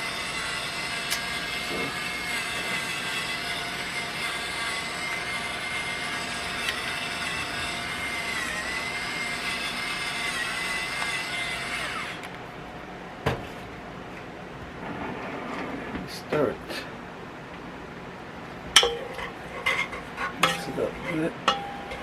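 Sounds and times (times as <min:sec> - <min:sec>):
motor-like whir with hiss: 0:00.0 - 0:12.2.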